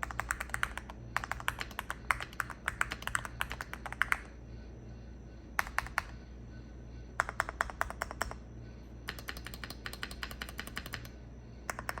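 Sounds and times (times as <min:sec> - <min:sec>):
mechanical keyboard typing: 0:00.0 - 0:04.3, 0:05.6 - 0:06.2, 0:07.2 - 0:08.4, 0:09.1 - 0:12.0.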